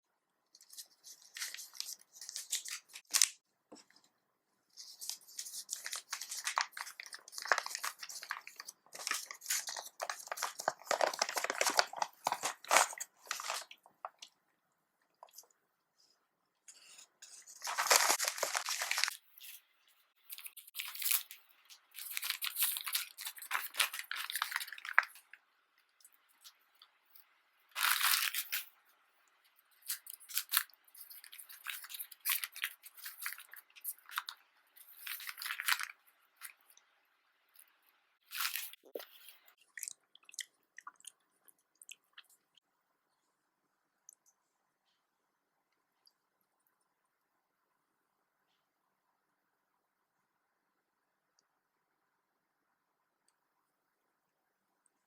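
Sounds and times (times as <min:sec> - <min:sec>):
food wrapping crinkling and tearing: 0:00.6 - 0:03.4, 0:04.8 - 0:14.3, 0:17.2 - 0:19.6, 0:20.2 - 0:25.4, 0:27.7 - 0:28.8, 0:29.7 - 0:36.7, 0:38.2 - 0:40.4.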